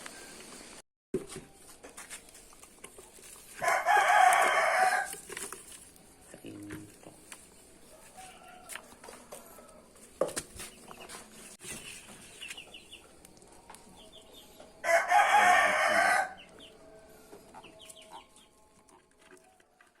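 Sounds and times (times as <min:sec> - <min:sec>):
rooster crowing: 0:03.6 - 0:05.2, 0:07.9 - 0:10.0, 0:14.8 - 0:16.5.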